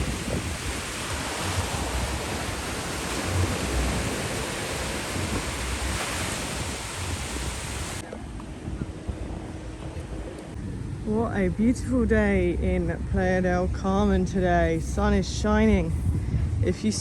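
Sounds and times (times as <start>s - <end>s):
ocean surf: 0.0s - 8.1s
wind buffeting microphone: 0.0s - 17.0s.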